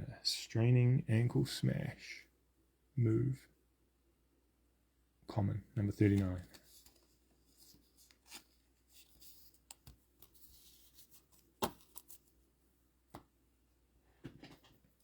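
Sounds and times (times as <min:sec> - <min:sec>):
cards rustling: 0:05.8 - 0:12.4.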